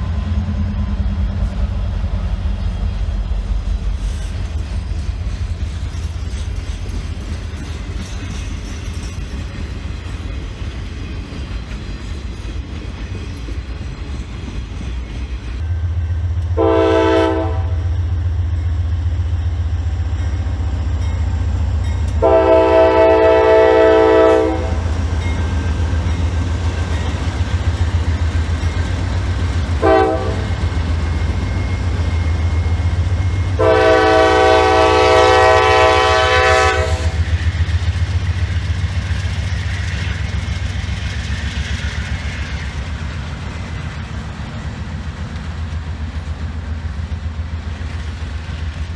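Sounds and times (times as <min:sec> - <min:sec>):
passing train rumble: 0:00.0 - 0:48.9
diesel locomotive horn blasts: 0:16.4 - 0:18.1, 0:22.1 - 0:25.0, 0:29.7 - 0:30.8, 0:31.9 - 0:37.3.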